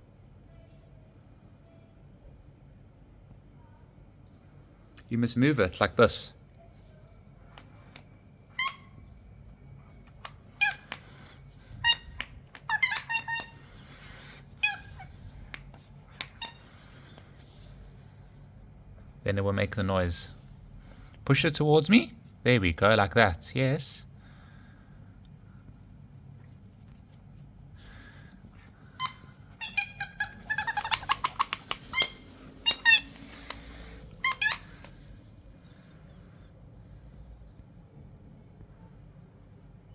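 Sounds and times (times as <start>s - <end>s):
squeaky electronic toy chirps: 8.6s - 9.0s, 10.6s - 11.0s, 11.6s - 15.2s, 29.0s - 34.9s
electronic squeaks and giggles: 29.0s - 33.6s.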